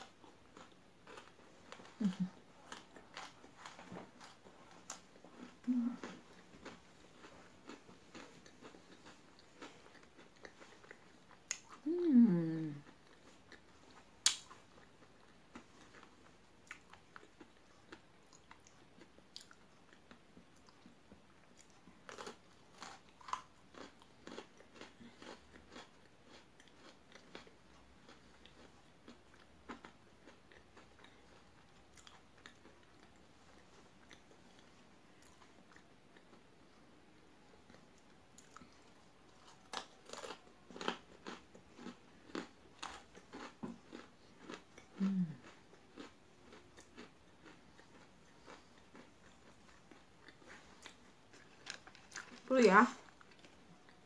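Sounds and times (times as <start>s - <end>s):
biscuit sticks crunching: 0.0s - 11.8s, 21.6s - 28.7s, 37.7s - 53.6s
soft chewing ticks: 0.0s - 54.0s.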